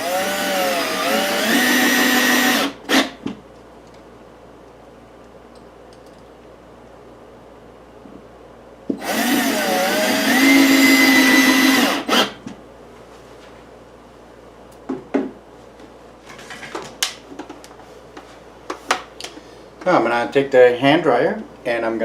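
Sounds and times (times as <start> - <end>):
power drill driving a screw: 0.0 - 3.2, 9.0 - 12.4.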